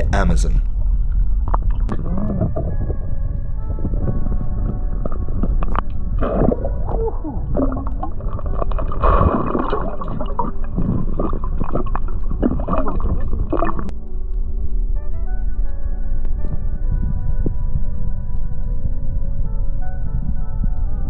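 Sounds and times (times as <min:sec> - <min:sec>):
low rumble: 0:00.0 - 0:21.0
water gurgling and splashing: 0:01.0 - 0:13.9.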